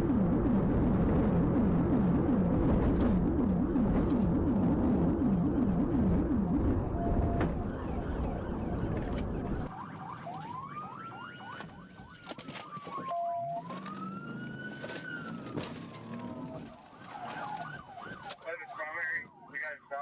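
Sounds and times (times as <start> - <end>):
heavy rumble: 0.0 - 9.7
fast sweeping sirens: 0.0 - 20.0
police siren wailing: 0.0 - 20.0.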